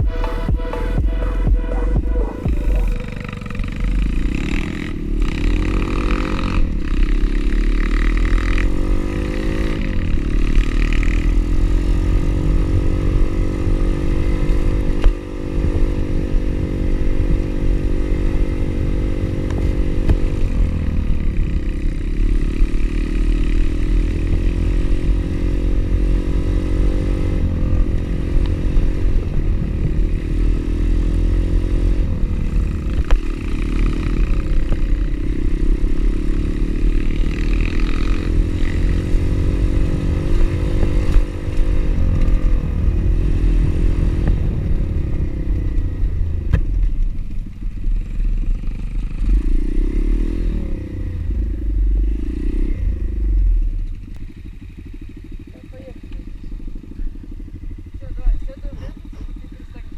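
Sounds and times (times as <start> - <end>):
pit bike engine revving: 0.0 - 59.9
wind rumble on microphone: 25.8 - 31.1, 38.5 - 48.1.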